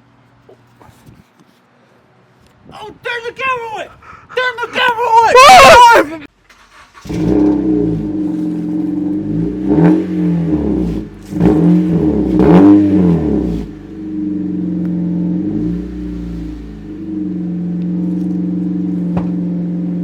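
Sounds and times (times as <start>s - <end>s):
car engine revving and idling: 6.5s - 20.0s.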